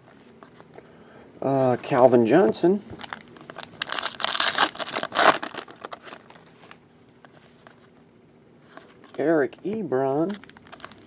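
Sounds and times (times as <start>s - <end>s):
trading card packaging crinkling: 3.0s - 6.8s, 10.2s - 11.0s.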